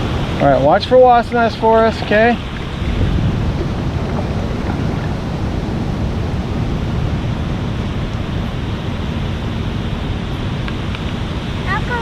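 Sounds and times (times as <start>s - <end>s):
rain: 0.0s - 5.5s, 6.3s - 12.0s
wind: 0.0s - 12.0s
wind buffeting microphone: 0.0s - 12.0s.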